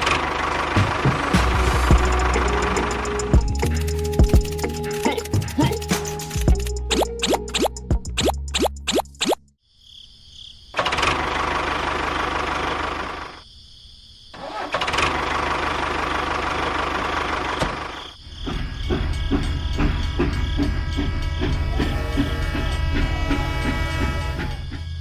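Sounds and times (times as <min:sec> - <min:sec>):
small engine starting and running: 0:00.0 - 0:05.4, 0:10.8 - 0:13.4, 0:14.4 - 0:25.0.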